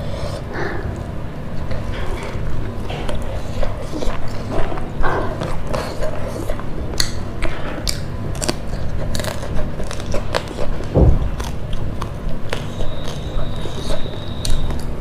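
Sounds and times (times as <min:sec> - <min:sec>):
person chewing: 0:05.4 - 0:14.9
low thump: 0:10.9 - 0:11.7.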